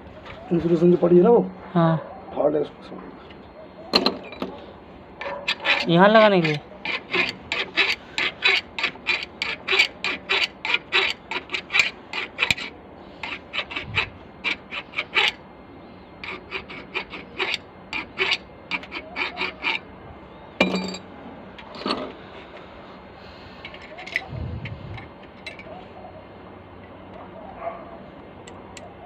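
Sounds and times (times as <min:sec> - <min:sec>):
hand tool scraping: 0:05.2 - 0:15.4, 0:16.2 - 0:19.9, 0:23.6 - 0:25.1.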